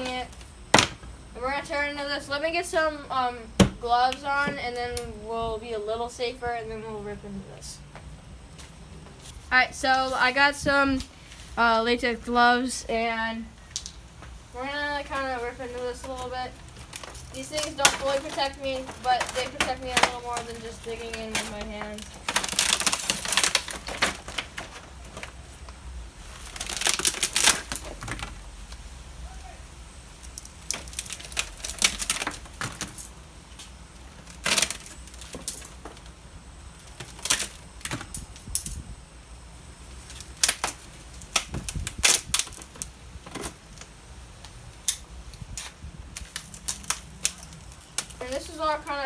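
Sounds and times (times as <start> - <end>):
plastic casing cracking and snapping: 16.6 - 28.4, 30.2 - 38.8, 40.0 - 48.4.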